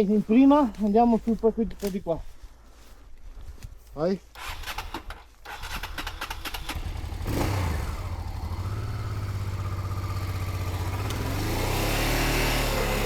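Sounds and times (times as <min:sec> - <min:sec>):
motorcycle engine revving: 0:04.4 - 0:13.0.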